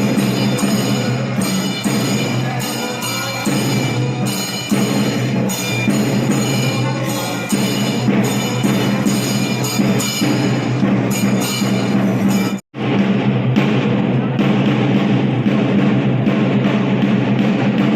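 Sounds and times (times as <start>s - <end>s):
ringing hand cymbals: 0.0s - 12.6s
drums beaten continuously: 0.0s - 17.9s.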